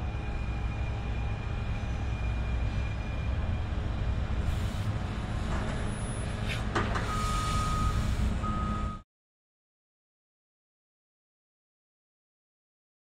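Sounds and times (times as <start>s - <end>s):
train rumbling by: 0.0s - 9.0s.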